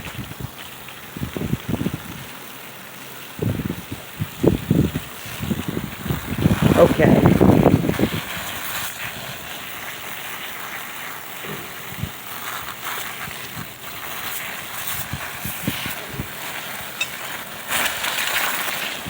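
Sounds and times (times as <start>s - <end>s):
water spraying over metal tools: 0.0s - 19.0s
metal tools knocking: 17.0s - 17.2s.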